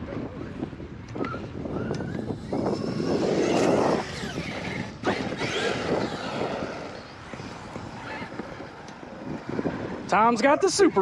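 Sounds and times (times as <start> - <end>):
electric motor whining: 1.7 - 9.8
tyres on rough ground: 2.2 - 9.6.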